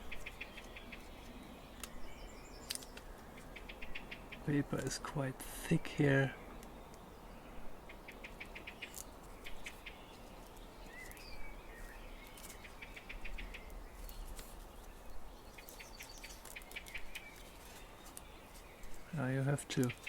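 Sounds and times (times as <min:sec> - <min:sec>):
faint bird chirping: 0:00.0 - 0:20.0
paper folding and crackling: 0:14.0 - 0:19.1.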